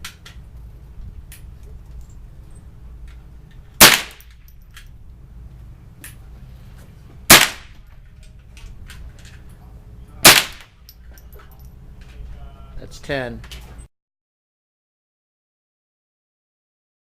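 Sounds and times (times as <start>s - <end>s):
rifle shots echoing indoors: 3.8s - 4.2s, 7.3s - 7.7s, 10.2s - 10.7s.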